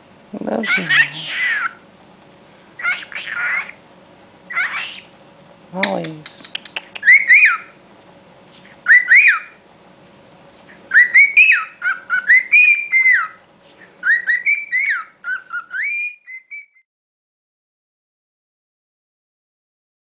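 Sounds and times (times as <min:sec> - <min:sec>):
cockatiel whistling: 0:02.8 - 0:03.8, 0:04.5 - 0:05.1, 0:06.5 - 0:07.8, 0:08.8 - 0:09.6, 0:10.9 - 0:13.4, 0:14.0 - 0:16.8.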